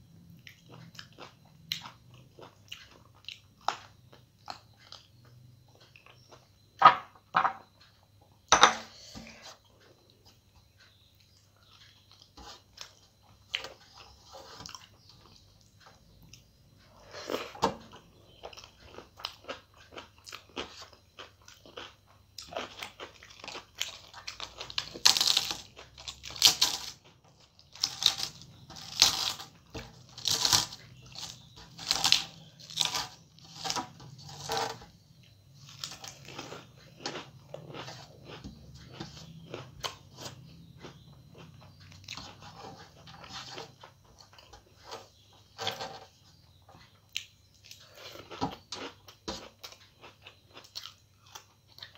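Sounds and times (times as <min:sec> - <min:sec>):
chewing and crunching food: 0:00.0 - 0:51.9.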